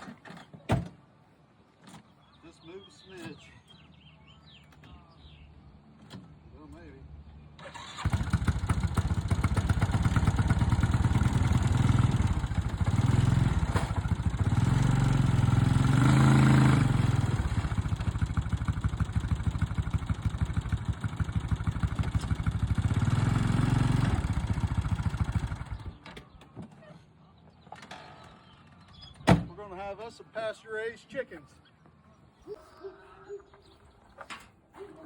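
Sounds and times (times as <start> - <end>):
small vehicle engine running: 7.6 - 26.0.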